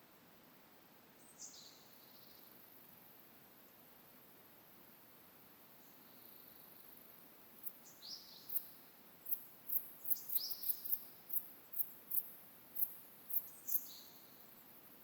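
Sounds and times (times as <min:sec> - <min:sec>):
small birds chirping: 0:05.7 - 0:14.6.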